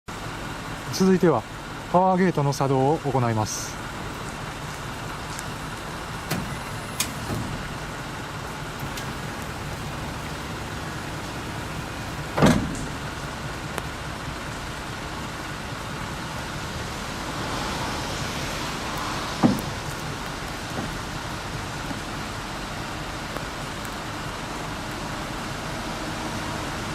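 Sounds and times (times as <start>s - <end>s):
loud metal clunks of lift platform: 6.2s - 7.7s, 12.3s - 13.0s.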